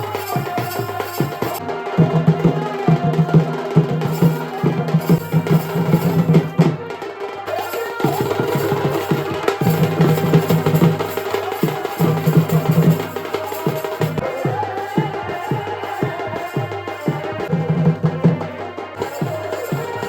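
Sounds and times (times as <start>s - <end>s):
fast dense drumming: 0.0s - 20.0s.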